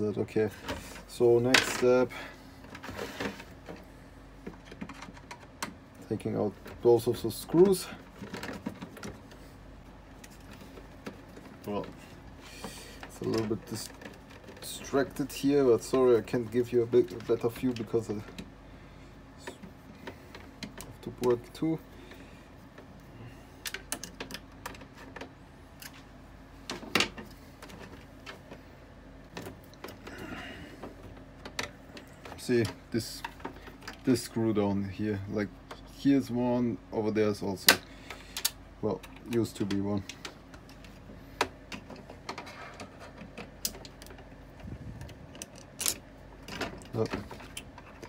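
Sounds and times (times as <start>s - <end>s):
hard plastic parts clicking and knocking: 2.6s - 5.9s, 7.6s - 9.4s, 19.4s - 21.6s, 23.6s - 26.0s, 26.6s - 28.6s, 29.3s - 34.1s, 37.6s - 48.0s.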